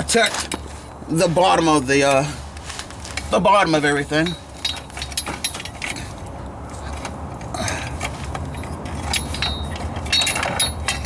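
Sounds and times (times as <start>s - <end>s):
light metallic clicks and clinks: 3.9s - 11.0s.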